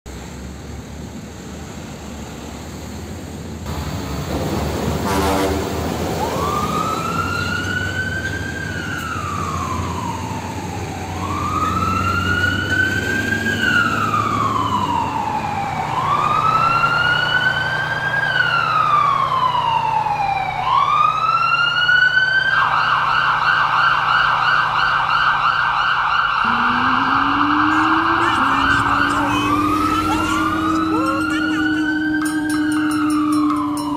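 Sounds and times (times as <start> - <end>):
emergency siren wailing: 5.1 - 33.9
vehicle engine rumbling past: 26.4 - 33.8.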